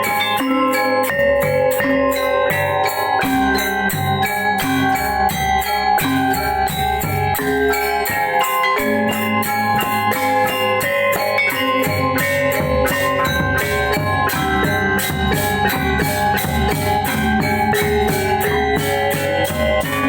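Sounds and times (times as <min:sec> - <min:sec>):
gamelan ensemble playing: 0:00.0 - 0:20.0.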